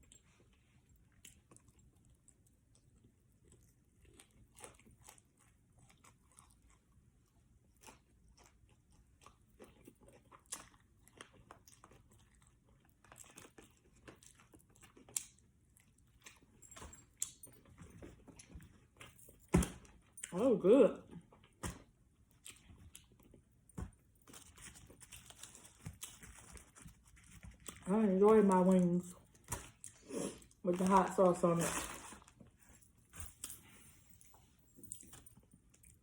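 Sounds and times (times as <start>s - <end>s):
person chewing crunchy food: 0.0s - 19.4s, 21.2s - 27.9s, 29.1s - 30.6s.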